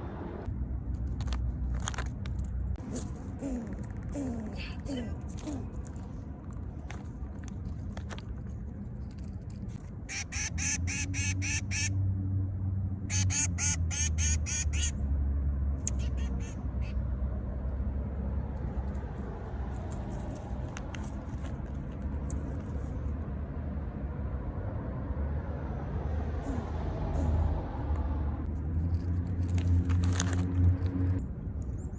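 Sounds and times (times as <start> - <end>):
animal harsh repeated calls: 10.1 - 11.9, 13.1 - 15.0, 15.8 - 17.0.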